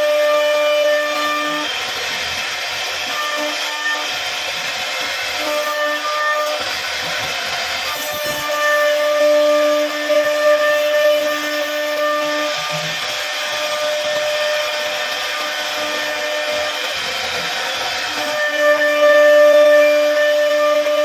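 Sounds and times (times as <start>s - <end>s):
bit cutting into wood: 0.0s - 21.0s
router spindle whining: 0.0s - 21.0s.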